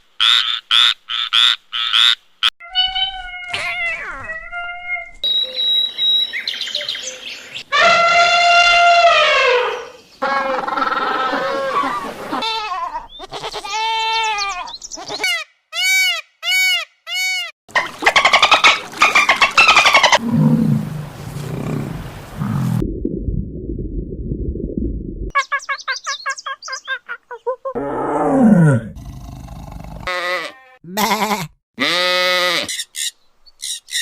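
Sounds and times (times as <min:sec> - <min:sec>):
animal calls: 0:07.7 - 0:15.4.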